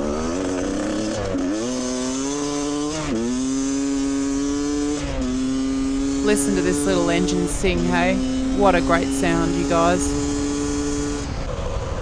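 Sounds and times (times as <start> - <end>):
dirt bike engine revving: 0.0 - 11.5.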